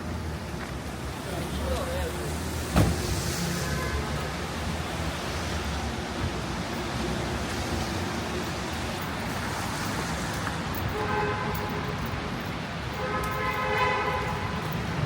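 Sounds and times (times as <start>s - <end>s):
rushing city traffic: 0.0s - 15.0s
car horn honking: 13.0s - 14.5s.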